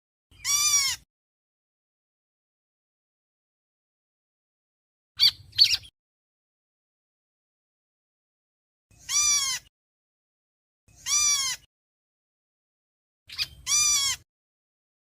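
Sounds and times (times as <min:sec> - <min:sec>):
bird calling: 0:05.2 - 0:05.9, 0:11.0 - 0:11.7, 0:13.3 - 0:14.2.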